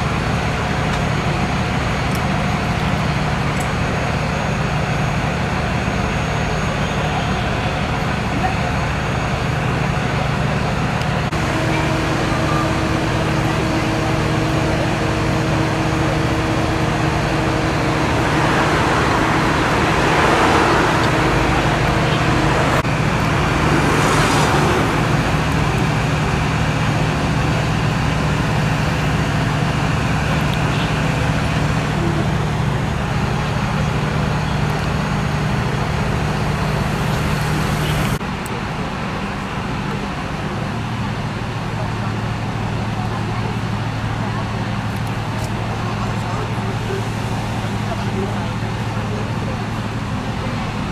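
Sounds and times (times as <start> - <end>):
street traffic noise: 0.0 - 50.9
vehicle engine humming: 0.0 - 50.9
vehicle passing rush: 11.3 - 27.6.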